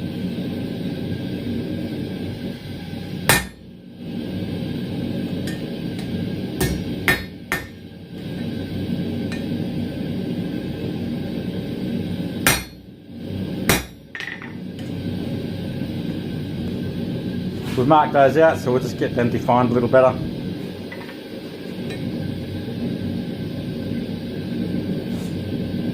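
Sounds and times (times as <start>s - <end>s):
hammer striking steel on anvil: 3.3s - 3.6s, 5.4s - 7.8s, 9.3s - 9.5s, 12.4s - 12.9s, 13.7s - 14.5s.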